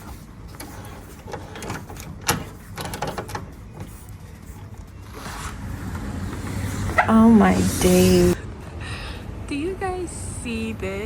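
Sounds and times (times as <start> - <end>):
door handle clicking and rattling: 0.5 - 3.9.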